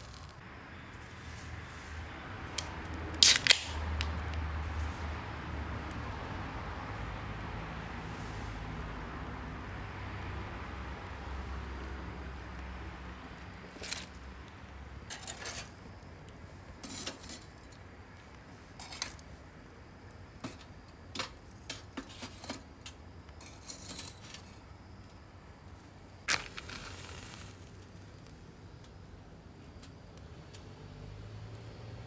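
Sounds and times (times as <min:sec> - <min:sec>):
small hard objects clinking: 0:00.0 - 0:00.4, 0:02.5 - 0:04.5, 0:26.3 - 0:28.3
sharp click: 0:02.6 - 0:04.2.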